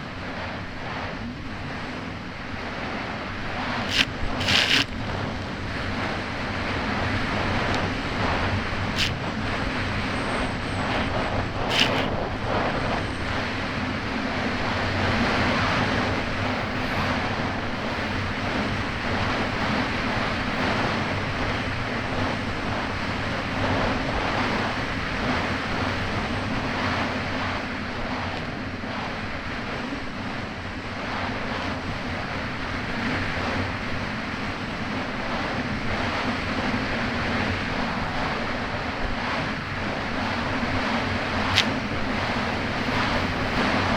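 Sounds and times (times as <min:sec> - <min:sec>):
rushing water: 0:00.0 - 0:12.8
jet ski engine running: 0:00.0 - 0:43.9
wind buffeting microphone: 0:00.0 - 0:43.9.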